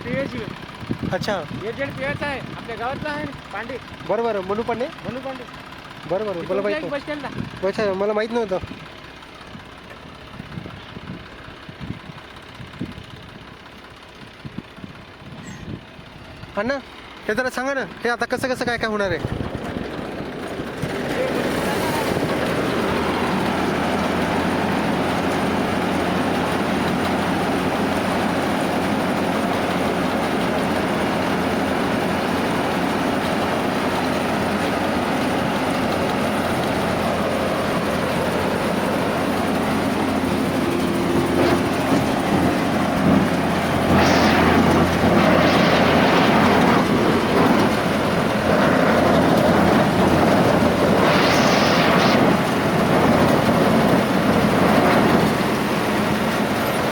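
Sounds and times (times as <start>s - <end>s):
harvesting machine engine hum: 0.0s - 56.9s
rushing machine noise: 16.6s - 56.9s.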